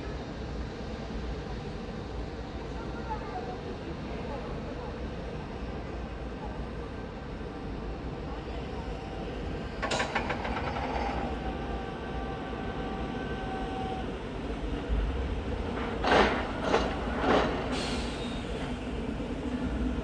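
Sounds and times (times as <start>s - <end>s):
train wheels clattering over rails: 9.4s - 14.1s, 15.4s - 18.8s.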